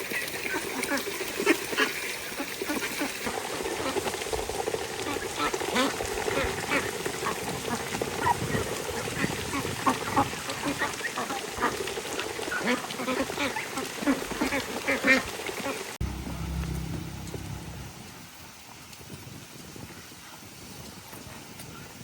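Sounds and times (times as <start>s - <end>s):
low steady rumble: 16.0s - 18.4s.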